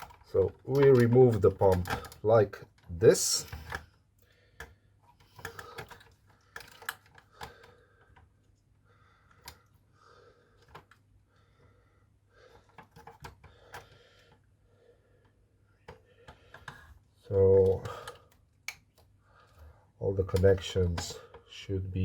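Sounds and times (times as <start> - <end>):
plastic parts clicking and rattling: 0.0 - 8.6, 9.2 - 9.8, 10.6 - 11.1, 12.4 - 14.4, 15.8 - 21.6.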